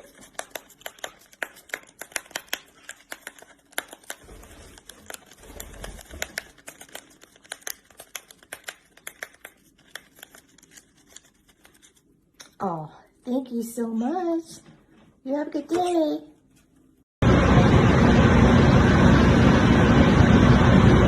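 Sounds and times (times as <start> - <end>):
packaging clicks and crackles: 0.0 - 12.0.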